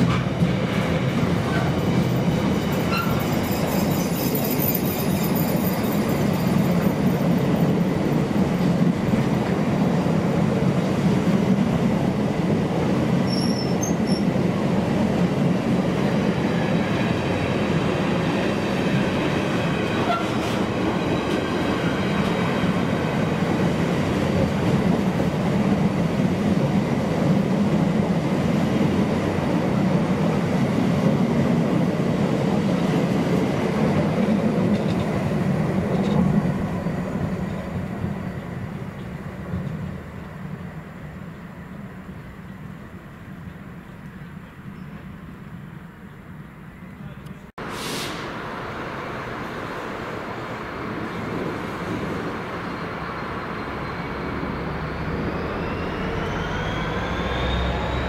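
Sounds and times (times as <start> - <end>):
steel wheels rumbling on rails: 0.0 - 44.3
faint high wheel squeal: 2.8 - 6.2, 13.3 - 14.3, 52.6 - 58.0.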